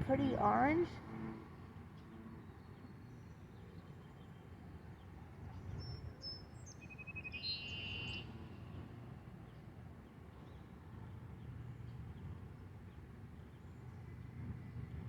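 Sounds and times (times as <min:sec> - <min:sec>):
low outdoor rumble: 0:00.0 - 0:01.6.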